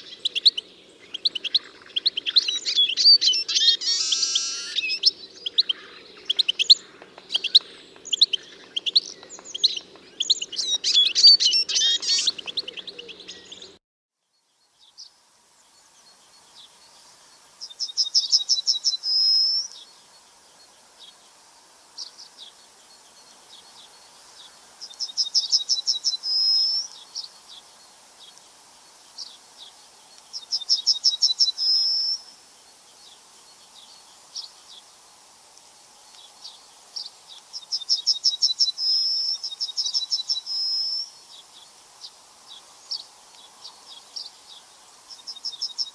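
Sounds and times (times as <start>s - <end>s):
bird singing fast trill: 0.0s - 13.8s, 17.6s - 19.9s, 24.8s - 27.6s, 30.4s - 32.4s, 36.2s - 45.9s
songbirds chirping: 0.0s - 45.9s.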